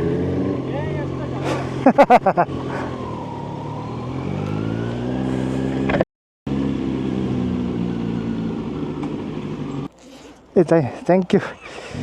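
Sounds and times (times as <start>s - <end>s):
motorcycle engine accelerating: 0.0s - 10.7s.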